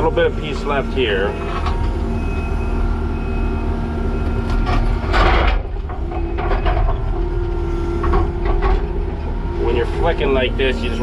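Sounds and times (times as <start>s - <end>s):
diesel engine under load: 0.0s - 11.0s
hydraulic whine: 0.0s - 11.0s.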